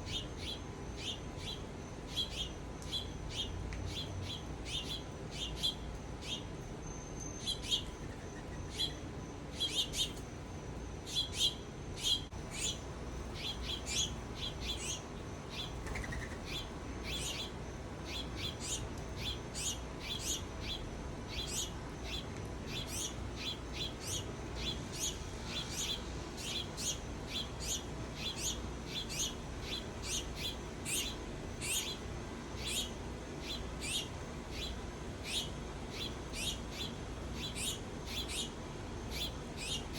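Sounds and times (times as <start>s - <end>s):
faint low hum: 0.0s - 39.9s
small birds chirping: 0.0s - 39.9s.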